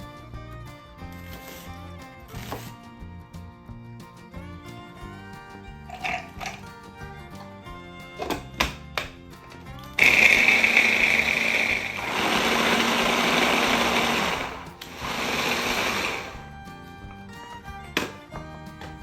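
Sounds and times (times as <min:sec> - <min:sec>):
background music: 0:00.0 - 0:19.0
food processor motor running: 0:05.9 - 0:06.7, 0:10.0 - 0:16.5.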